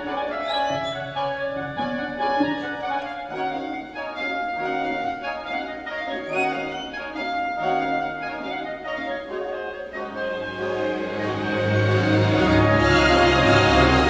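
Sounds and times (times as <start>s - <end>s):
orchestra bowed strings: 0.0s - 14.0s
sharp orchestral accent: 0.1s - 3.4s.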